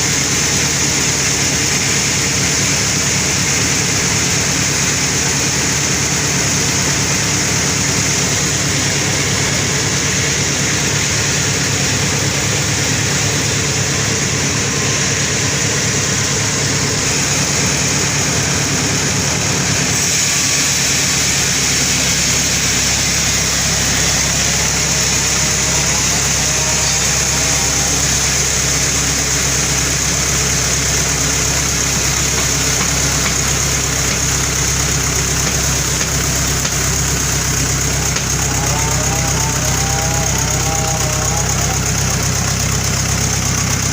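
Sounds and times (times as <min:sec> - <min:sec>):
deep engine drone: 0:00.0 - 0:43.9
saw hissing through log: 0:00.0 - 0:43.9.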